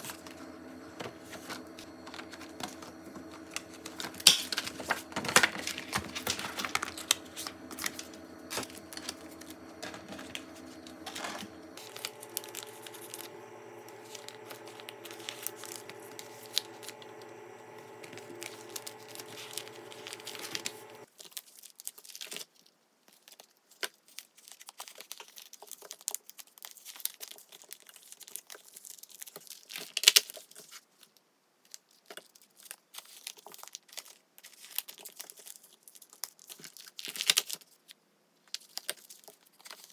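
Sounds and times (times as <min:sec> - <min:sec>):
plastic sleeves crinkling: 0:00.0 - 0:22.2.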